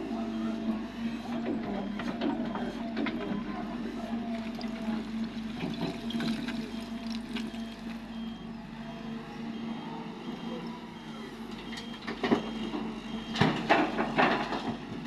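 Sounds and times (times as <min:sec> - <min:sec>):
excavator diesel engine humming: 0:00.0 - 0:15.0
rock and soil rattling: 0:04.4 - 0:08.0.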